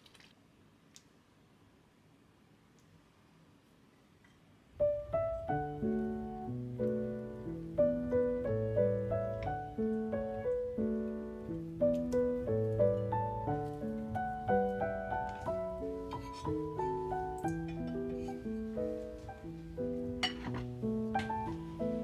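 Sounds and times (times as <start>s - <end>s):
gentle piano music: 4.8s - 22.0s.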